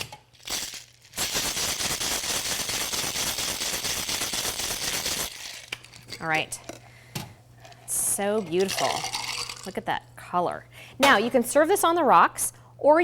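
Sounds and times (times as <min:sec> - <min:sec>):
ice rattling in cocktail shaker: 0:00.4 - 0:06.4, 0:08.2 - 0:09.8.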